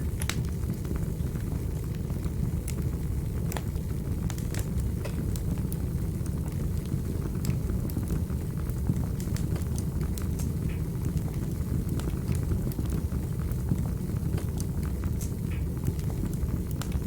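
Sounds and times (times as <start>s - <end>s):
wood fire pops and clicks: 0.0s - 1.0s, 3.4s - 5.7s, 6.4s - 13.1s, 14.3s - 17.0s
fire flames roaring: 0.0s - 17.0s.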